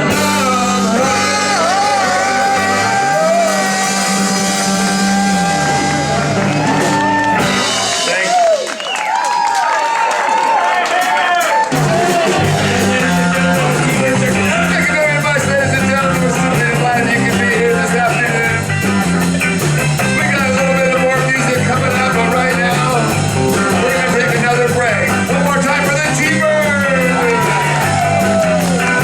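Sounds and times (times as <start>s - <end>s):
guitar melody: 0.0s - 8.2s, 11.8s - 29.0s
bass line: 0.0s - 8.6s, 11.7s - 29.0s.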